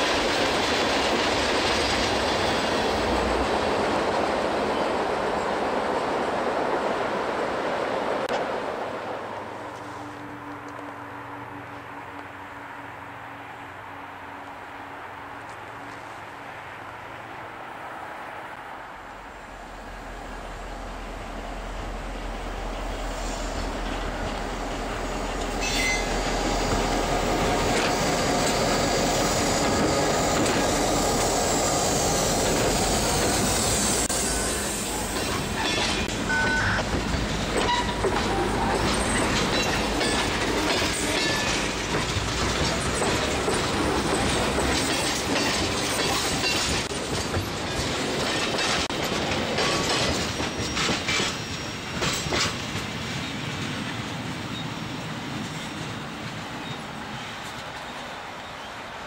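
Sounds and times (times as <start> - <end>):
wheels clacking over rail joints: 0.0 - 6.8, 21.8 - 58.6
locomotive engines droning: 0.0 - 59.0.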